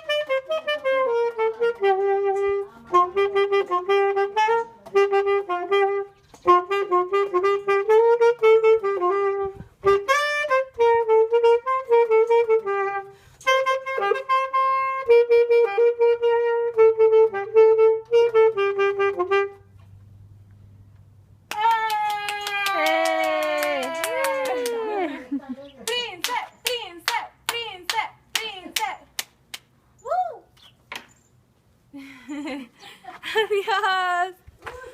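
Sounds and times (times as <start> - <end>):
saxophone melody: 0.0 - 20.4.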